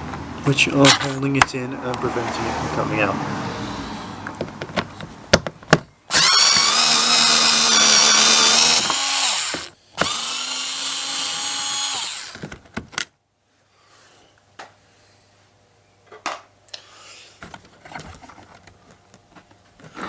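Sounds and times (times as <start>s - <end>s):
power driver motor whine: 6.1s - 12.4s.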